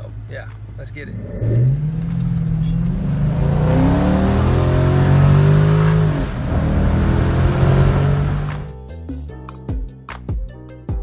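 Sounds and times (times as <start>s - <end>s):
car engine accelerating: 0.0s - 8.7s.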